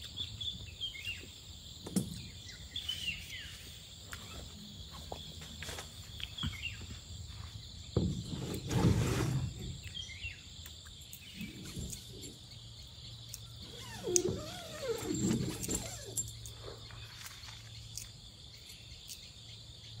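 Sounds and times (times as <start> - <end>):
high insect drone: 0.0 - 20.0
knocks and rustling: 7.9 - 9.9.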